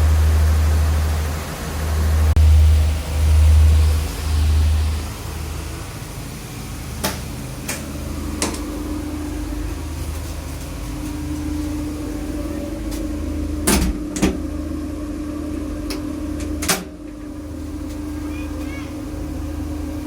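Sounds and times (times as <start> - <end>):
train rumbling: 0.0 - 20.0
sharp knocks from train coach: 7.0 - 8.6, 13.7 - 14.4.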